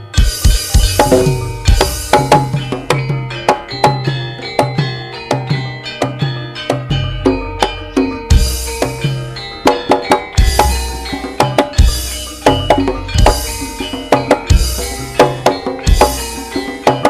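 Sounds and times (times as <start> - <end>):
metallophone notes ringing: 0.0 - 17.0
deep hand-drum strokes: 0.2 - 3.1, 10.4 - 16.5.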